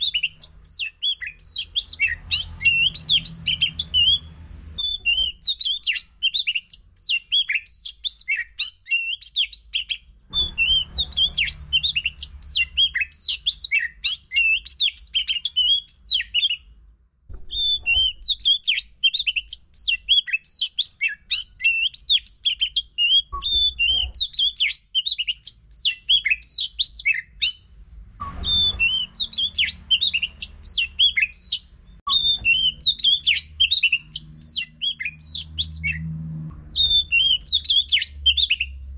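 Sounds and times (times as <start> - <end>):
bird singing chirps and trills: 0.0 - 16.7, 17.3 - 38.9
faint low hum: 9.8 - 18.4.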